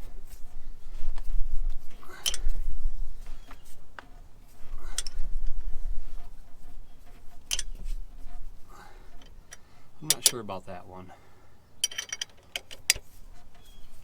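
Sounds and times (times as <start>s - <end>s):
sharp metallic clicks: 9.2s - 10.6s.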